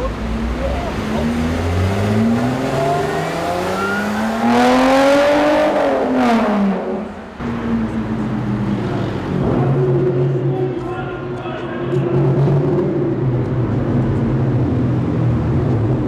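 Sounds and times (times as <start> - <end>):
cars rolling slowly: 0.0 - 16.0
sports car engine accelerating: 0.0 - 16.0.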